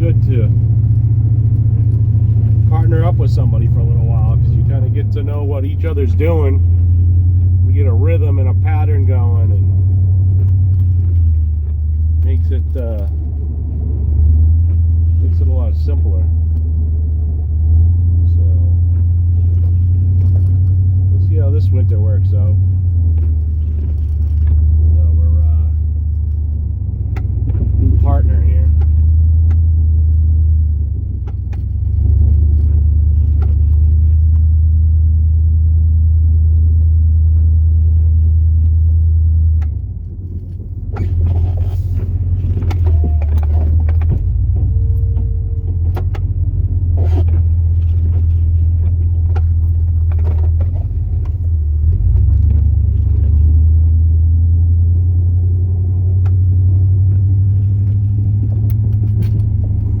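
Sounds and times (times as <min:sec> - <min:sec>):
engine running: 0:00.0 - 1:00.0
knocks and rattles: 0:36.7 - 0:53.7.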